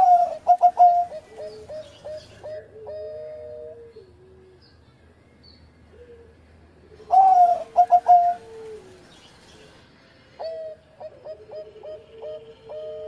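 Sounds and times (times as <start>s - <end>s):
dove cooing: 0.0s - 4.6s, 5.9s - 9.8s, 10.4s - 13.0s.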